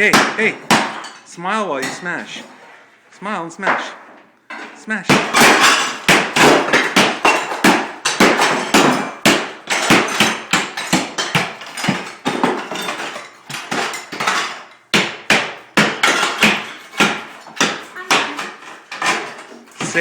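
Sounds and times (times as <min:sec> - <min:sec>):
hammer smashing into wall: 0:00.0 - 0:01.2, 0:05.1 - 0:20.0.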